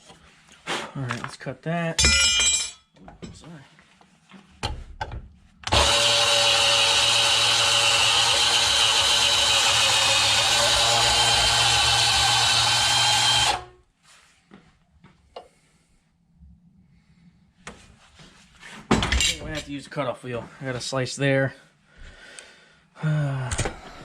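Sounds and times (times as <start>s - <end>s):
power tool cutting steel: 5.7s - 13.7s.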